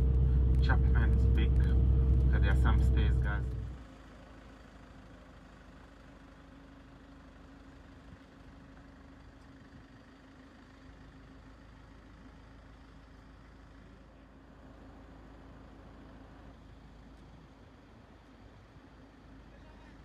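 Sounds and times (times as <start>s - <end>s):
low rumble: 0.0s - 3.9s
vehicle engine idling: 0.0s - 20.0s.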